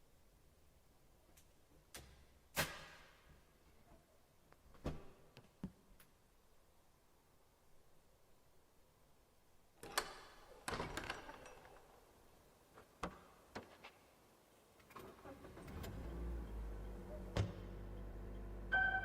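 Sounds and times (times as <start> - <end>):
car engine starting and running: 15.1 - 19.0.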